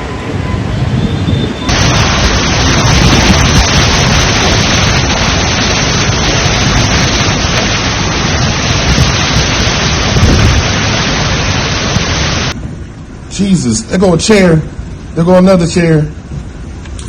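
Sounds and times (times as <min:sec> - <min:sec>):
wind buffeting microphone: 0:00.0 - 0:12.8
storm wind and rain rushing: 0:00.0 - 0:15.5.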